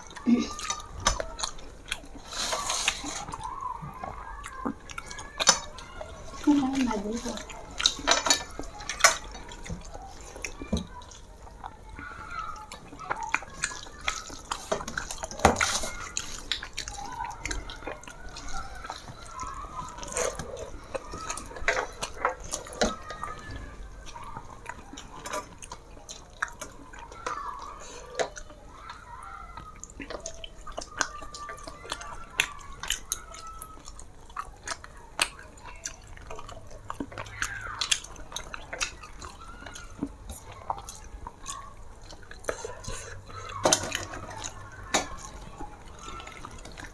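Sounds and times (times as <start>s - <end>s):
wet chewing and mouth smacks: 0.0s - 46.9s.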